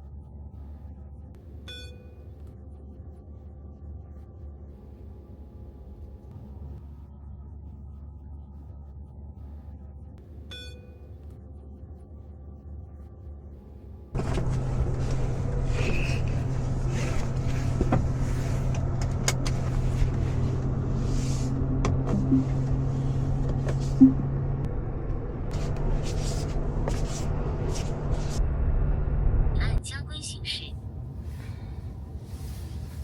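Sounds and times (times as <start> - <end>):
road and tyre noise hum: 14.1 - 29.8, 30.4 - 33.0.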